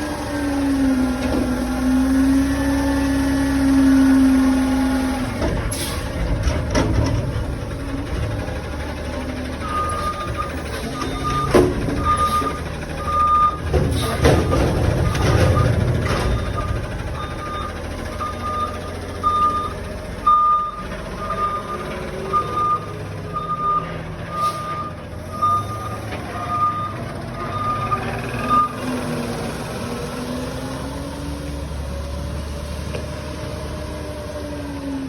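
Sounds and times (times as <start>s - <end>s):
truck engine running: 0.0s - 32.6s
truck backup alarm beeping: 7.4s - 29.4s.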